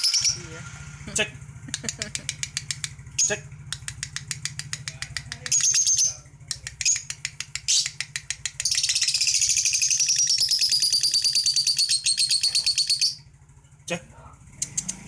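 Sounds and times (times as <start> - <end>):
lovebird chattering: 2.2 - 13.2.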